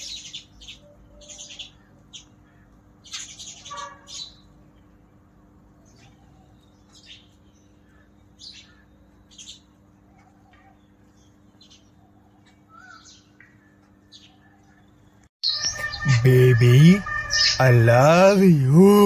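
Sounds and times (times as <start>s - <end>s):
small birds chirping: 0.0s - 18.4s
steady low hum: 15.7s - 19.0s.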